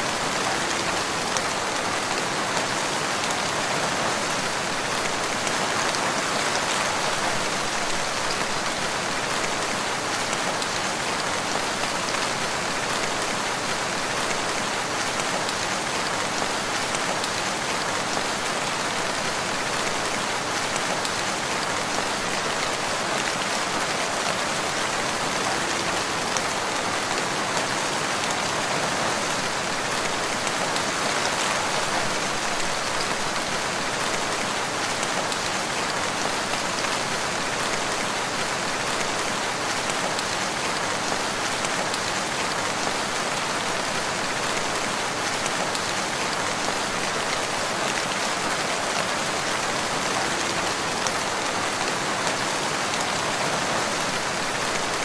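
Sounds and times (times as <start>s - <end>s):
rain falling steadily: 0.0s - 55.0s.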